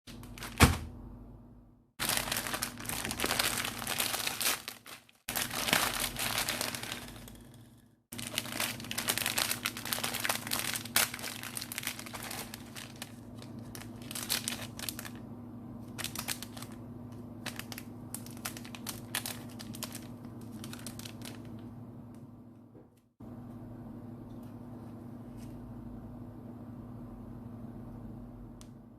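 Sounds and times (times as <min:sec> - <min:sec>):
faint steady hum: 0:00.1 - 0:28.9
candy packaging crinkling: 0:02.0 - 0:15.2, 0:15.9 - 0:21.7.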